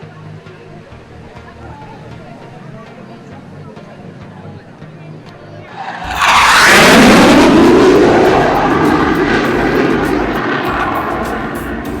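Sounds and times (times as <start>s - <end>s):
jet aircraft passing low: 5.7s - 11.9s.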